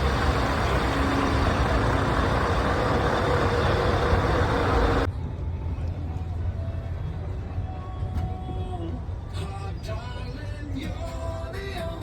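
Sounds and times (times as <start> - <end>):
truck engine running: 0.0 - 5.1.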